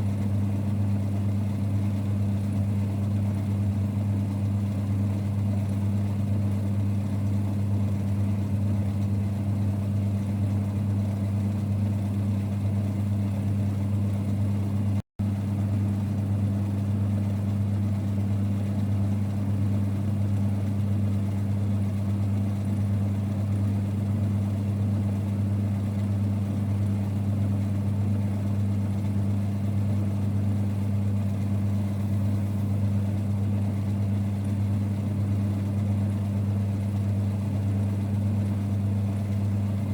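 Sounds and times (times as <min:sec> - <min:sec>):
lathe running with low hum: 0:00.0 - 0:39.9.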